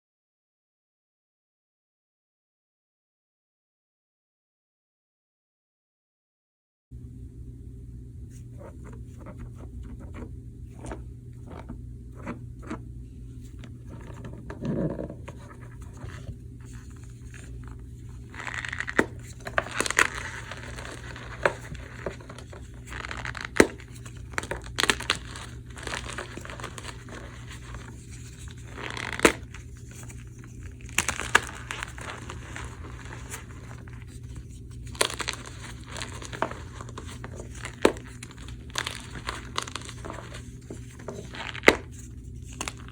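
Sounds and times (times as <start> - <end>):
steady low hum: 6.9 - 42.9
chalk blocks crunching by hand: 18.2 - 42.9.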